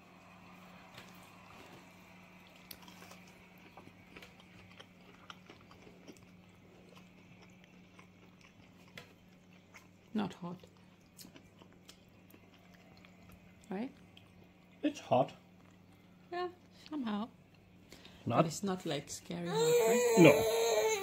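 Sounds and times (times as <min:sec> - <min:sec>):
steady low hum: 0:00.0 - 0:21.0
man chewing crunchy food: 0:00.8 - 0:16.8.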